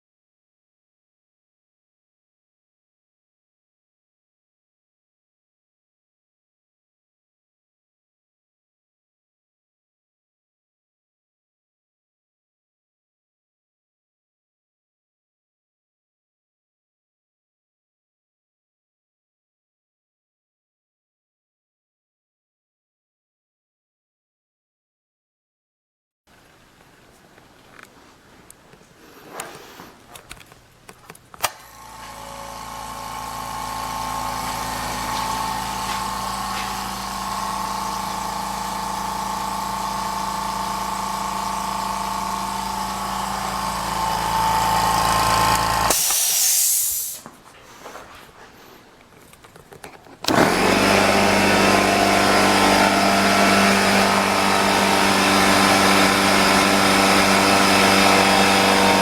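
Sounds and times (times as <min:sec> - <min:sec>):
air compressor running: 0:31.4 - 0:47.2, 0:50.3 - 0:59.0
air hiss: 0:45.9 - 0:47.3.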